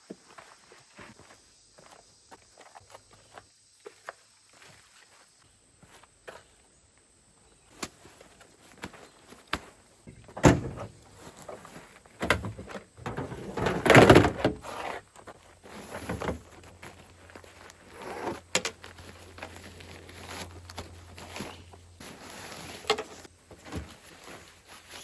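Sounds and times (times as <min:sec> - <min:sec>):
clunks and knocks: 0:10.1 - 0:11.0, 0:12.2 - 0:14.7
door-like thud: 0:10.4 - 0:10.9.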